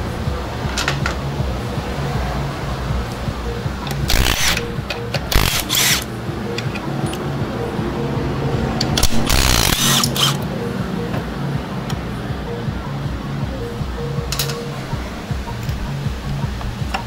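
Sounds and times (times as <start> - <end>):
background music: 0.0 - 17.0
power tool bursts: 4.1 - 6.1, 9.0 - 10.4.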